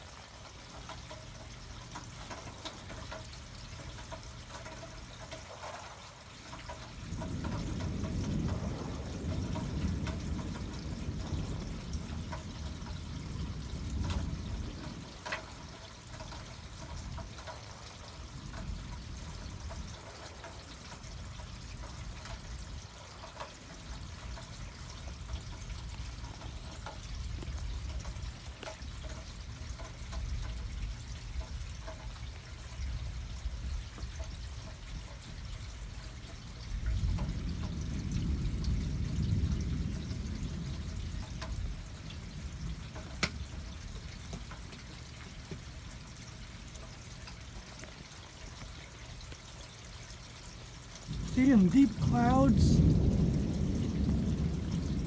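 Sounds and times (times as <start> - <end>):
rain falling: 0.0 - 55.0
sharp drip-like ticks: 0.0 - 55.0
low thunder rumble: 6.7 - 22.8, 36.6 - 43.9, 51.0 - 55.0.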